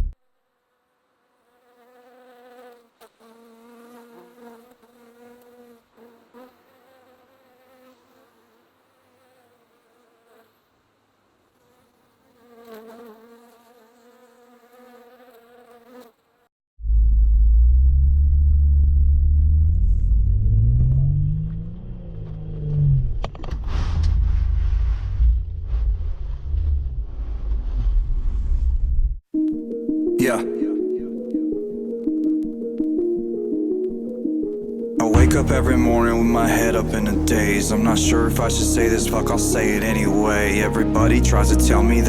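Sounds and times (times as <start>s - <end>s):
vehicle engine revving: 16.9s - 27.5s
drone propellers buzzing: 17.3s - 24.2s.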